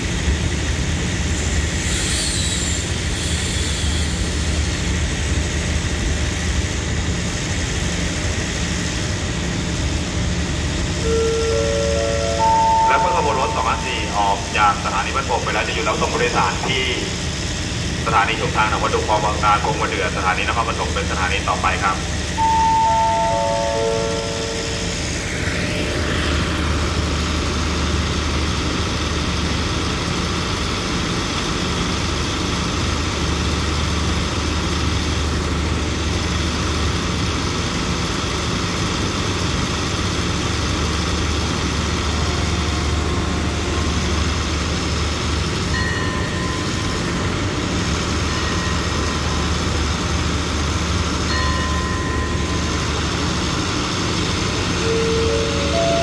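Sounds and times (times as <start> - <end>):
diesel train engine rumble: 0.0 - 56.0
faint high tones: 11.0 - 14.5, 22.4 - 25.2.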